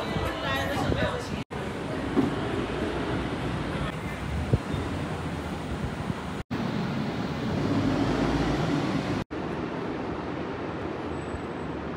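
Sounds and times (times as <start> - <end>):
traffic rumble: 0.0 - 11.9.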